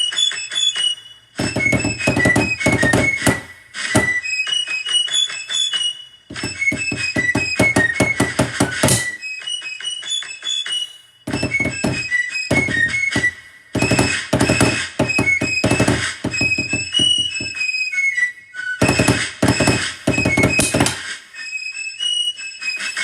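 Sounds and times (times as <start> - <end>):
shrill fife melody: 0.0 - 23.0
snare drum rolls: 1.4 - 4.2, 6.3 - 9.2, 11.3 - 17.6, 18.8 - 21.2.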